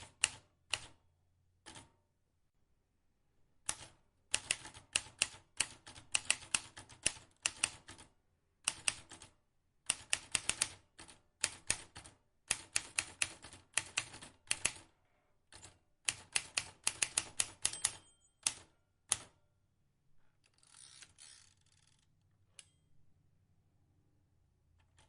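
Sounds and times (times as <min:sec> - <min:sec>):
typewriter keys clicking: 0:03.7 - 0:08.0, 0:09.9 - 0:14.8, 0:15.5 - 0:19.3.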